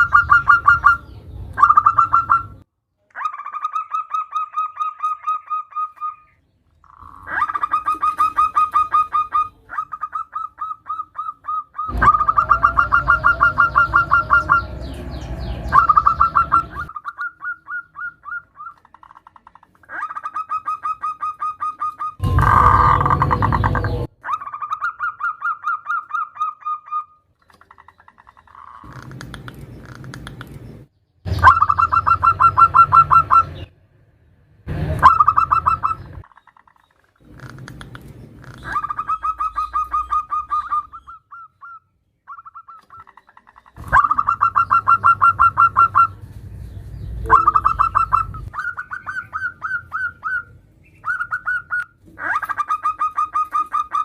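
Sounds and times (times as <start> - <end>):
dove trilled cooing: 0.0 - 2.6, 7.0 - 18.9, 19.9 - 27.0, 31.3 - 33.7, 35.0 - 36.2, 37.4 - 46.2, 47.2 - 54.0
low rumble: 11.9 - 16.9, 22.2 - 24.2.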